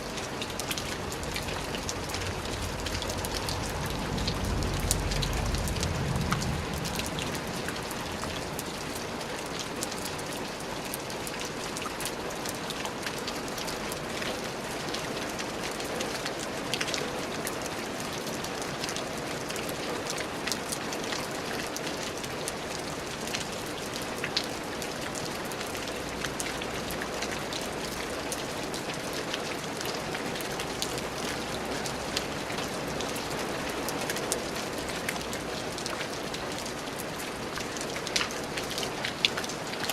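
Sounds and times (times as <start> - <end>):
rain on a hard surface: 0.0 - 39.9
low rumble: 1.1 - 8.9.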